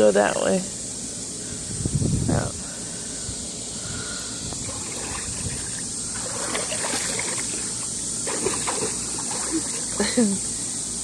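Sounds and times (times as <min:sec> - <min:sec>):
steady hiss: 0:00.0 - 0:11.0
water splashing and trickling: 0:04.5 - 0:10.4.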